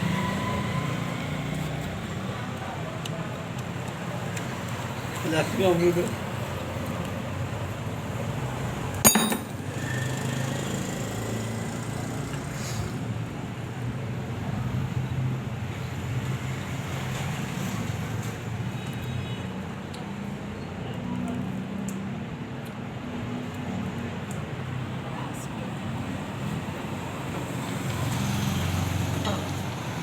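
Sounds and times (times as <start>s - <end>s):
sharp metallic clink: 9.1s - 9.9s.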